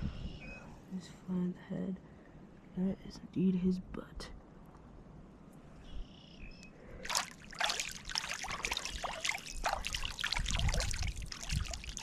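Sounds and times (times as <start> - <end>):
water splashing: 7.0 - 12.0.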